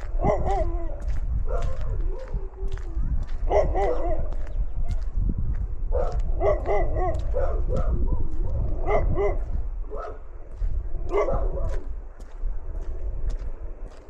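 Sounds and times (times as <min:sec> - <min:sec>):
footsteps crunching in snow: 0:00.0 - 0:14.0
low rumble: 0:00.0 - 0:14.0
dog barking and yipping: 0:00.2 - 0:02.8, 0:03.5 - 0:05.1, 0:05.9 - 0:10.2, 0:11.1 - 0:11.8.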